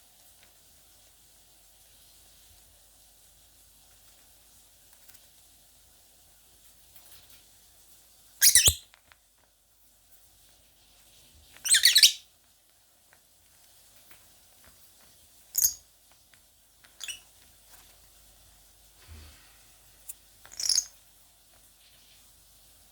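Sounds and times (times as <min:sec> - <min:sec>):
lovebird shrill harsh calls: 0:08.4 - 0:08.8, 0:11.6 - 0:12.2, 0:15.6 - 0:15.8, 0:17.0 - 0:17.2, 0:20.5 - 0:20.9.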